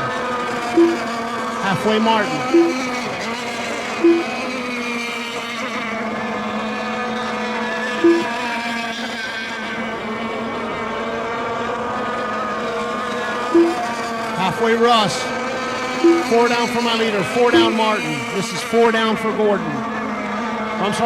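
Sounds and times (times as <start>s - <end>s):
short loud beeps: 0.8s - 3.1s, 4.0s - 4.5s, 8.0s - 8.4s, 13.6s - 14.0s, 16.0s - 16.8s, 17.5s - 18.2s.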